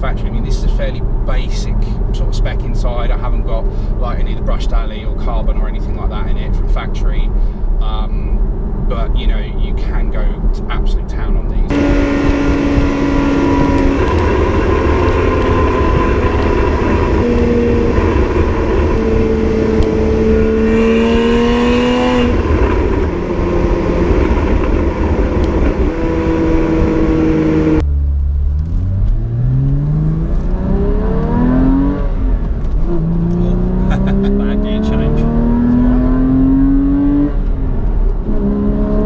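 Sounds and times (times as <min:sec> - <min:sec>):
car engine revving: 0:11.7 - 0:39.0.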